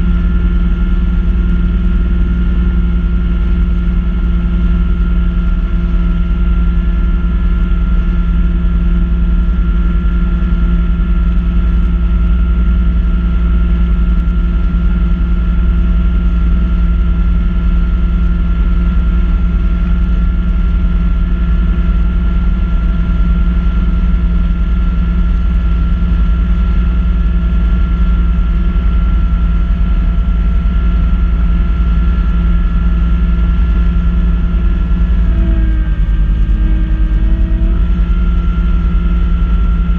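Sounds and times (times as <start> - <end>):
high whine: 0.0 - 39.9
tractor diesel engine running: 26.8 - 39.9.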